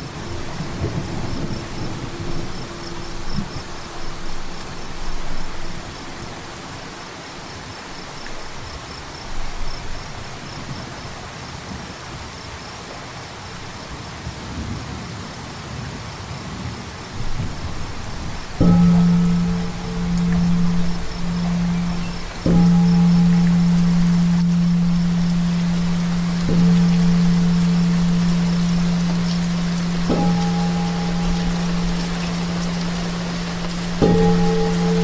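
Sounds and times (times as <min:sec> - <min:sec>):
low rumbling: 0:00.0 - 0:08.6, 0:17.2 - 0:35.0
singing bowl hum: 0:00.0 - 0:10.5, 0:17.2 - 0:35.0
cricket chirping: 0:00.0 - 0:11.2, 0:17.2 - 0:35.0
steady rain: 0:00.0 - 0:35.0.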